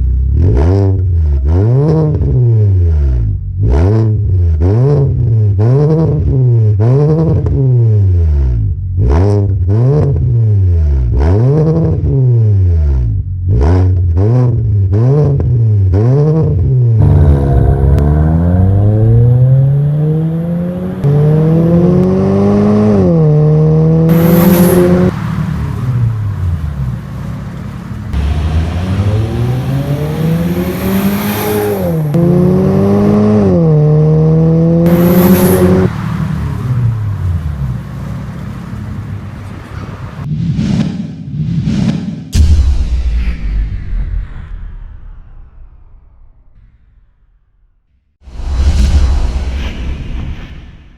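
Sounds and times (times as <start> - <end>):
car engine revving: 0.3 - 40.3
car accelerating through gears: 17.0 - 26.1, 28.1 - 37.1.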